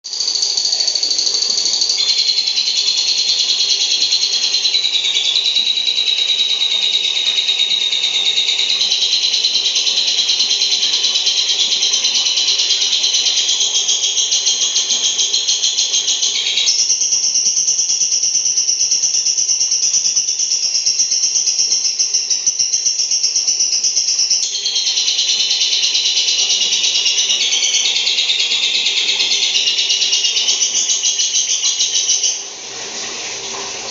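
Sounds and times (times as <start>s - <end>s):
lovebird rattling chatter: 0.2s - 6.2s.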